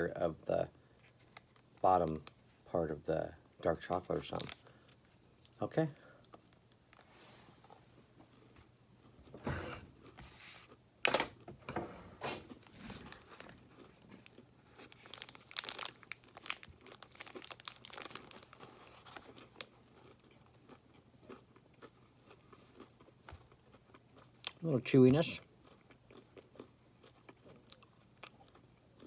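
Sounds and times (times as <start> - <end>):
crunchy chewing: 12.4 - 24.6, 25.6 - 29.0.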